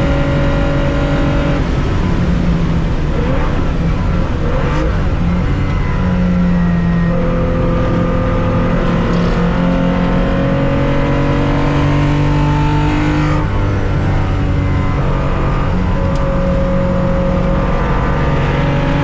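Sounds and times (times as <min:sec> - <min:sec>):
racing car engine under load: 0:00.0 - 0:19.0.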